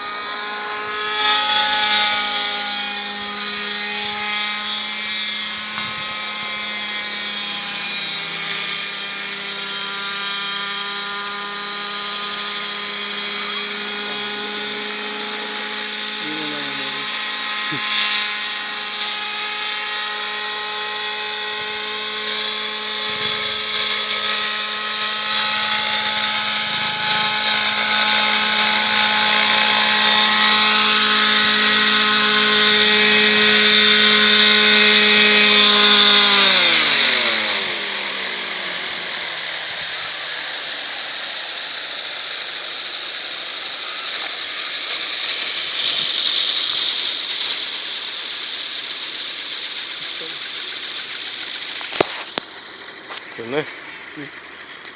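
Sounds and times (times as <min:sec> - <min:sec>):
rc helicopter engine and rotor: 0:00.0 - 0:54.9
steady hiss: 0:39.4 - 0:54.9.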